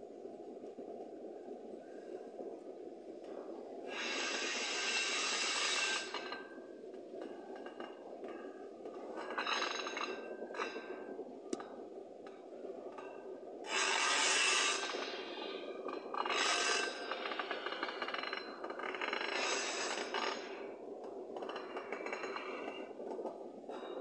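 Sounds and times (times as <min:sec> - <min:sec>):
wheel-on-rail hissing: 0:03.8 - 0:06.4, 0:13.7 - 0:20.7.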